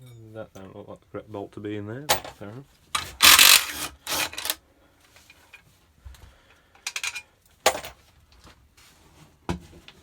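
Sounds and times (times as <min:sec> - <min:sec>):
metal tools clinking: 0:03.0 - 0:04.6.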